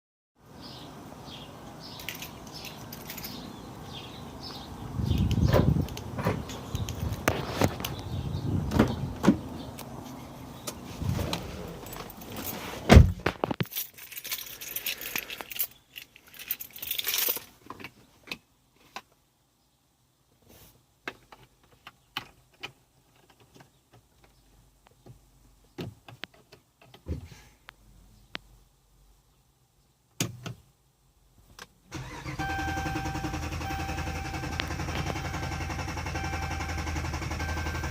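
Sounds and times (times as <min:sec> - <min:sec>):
keys jangling: 0:02.0 - 0:03.4, 0:13.6 - 0:17.5
knocks and handling noise: 0:10.6 - 0:19.2.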